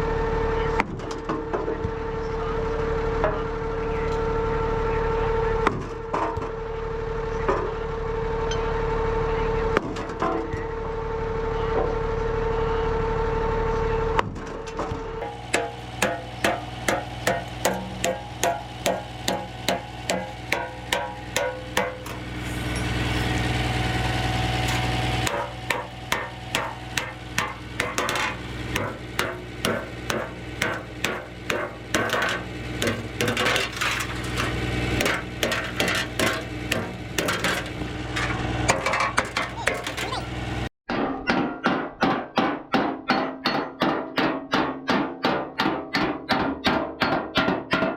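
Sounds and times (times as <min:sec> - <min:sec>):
low steady hum: 0:12.2 - 0:40.6
hammer striking metal: 0:15.2 - 0:40.2.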